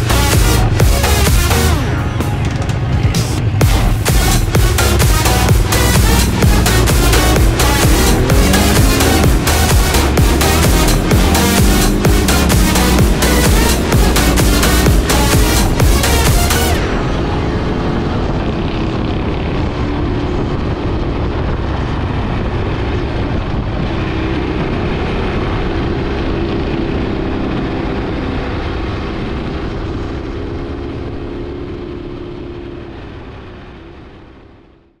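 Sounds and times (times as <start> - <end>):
atv engine running: 0.0 - 35.0.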